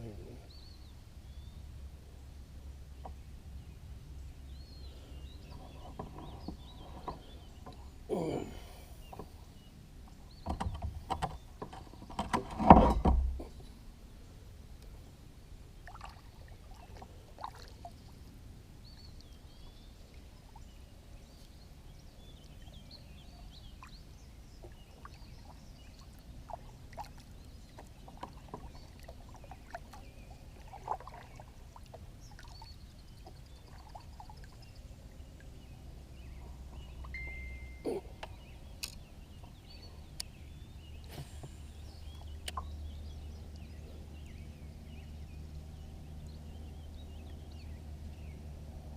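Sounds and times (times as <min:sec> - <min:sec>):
kayak splashing and knocking: 0:24.6 - 0:32.6.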